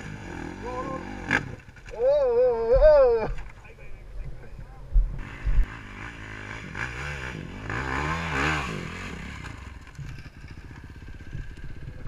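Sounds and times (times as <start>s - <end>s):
dirt bike engine revving: 0.0s - 1.8s, 5.2s - 12.0s.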